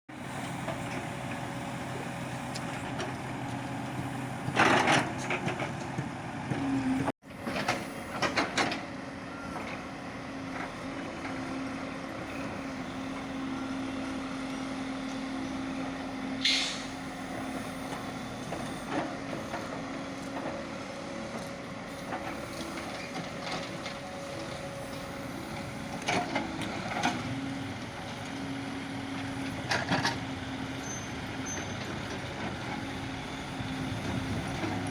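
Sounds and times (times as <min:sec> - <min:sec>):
diesel engine running: 0:00.1 - 0:34.9
short hiss: 0:16.4 - 0:17.0.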